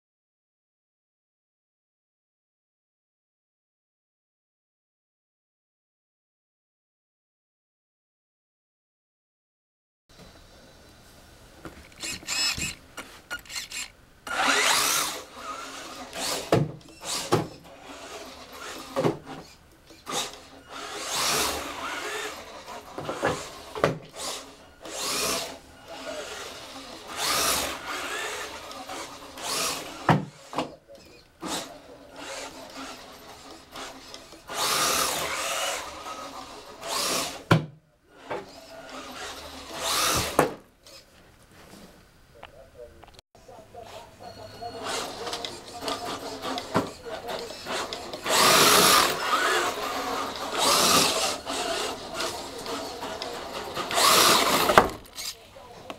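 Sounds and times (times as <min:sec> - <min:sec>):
electric motor spinning up: 0:11.9 - 0:18.9, 0:20.0 - 0:30.1, 0:32.2 - 0:37.4, 0:47.4 - 0:55.4.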